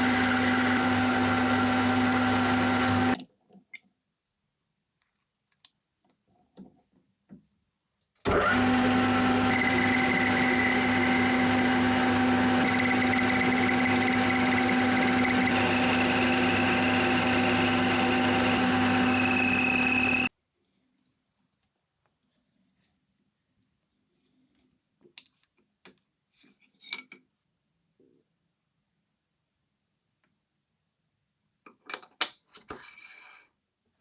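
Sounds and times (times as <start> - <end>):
electric machine motor humming: 0.0 - 3.2, 8.3 - 20.3.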